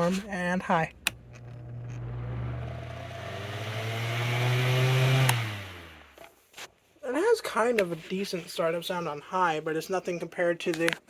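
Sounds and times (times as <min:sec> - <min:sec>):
fan motor whirring: 0:00.0 - 0:06.2.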